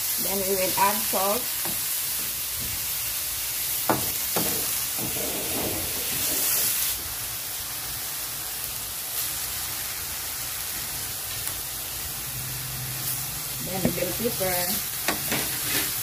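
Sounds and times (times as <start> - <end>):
food sizzling in a wok: 0.0 - 16.0
wooden spatula scraping pan: 4.4 - 6.8, 15.1 - 16.0.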